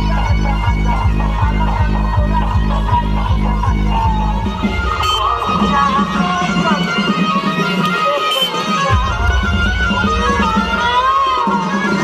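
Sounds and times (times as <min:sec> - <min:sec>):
loud music over sound system: 0:00.0 - 0:12.0.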